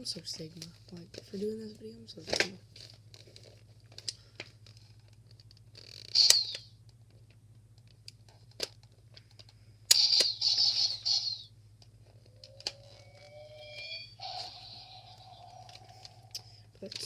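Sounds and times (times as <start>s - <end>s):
steady low hum: 0.0s - 17.0s
sharp clicks of toys: 5.8s - 6.7s, 9.4s - 11.5s.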